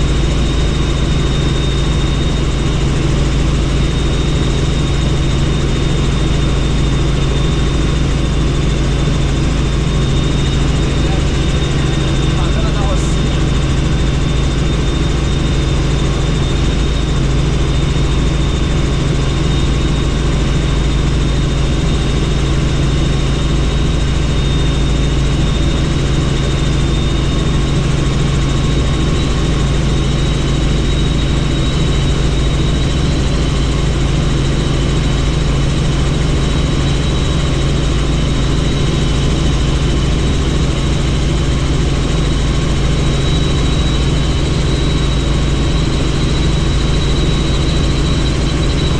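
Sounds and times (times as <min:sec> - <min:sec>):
helicopter engine and rotor drone: 0:00.0 - 0:48.9.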